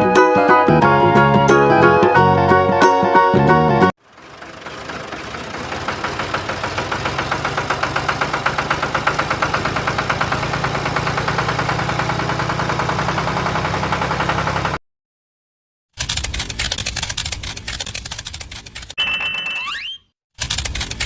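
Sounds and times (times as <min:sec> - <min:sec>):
music: 0:00.0 - 0:03.9
small motor rattling: 0:04.0 - 0:14.8.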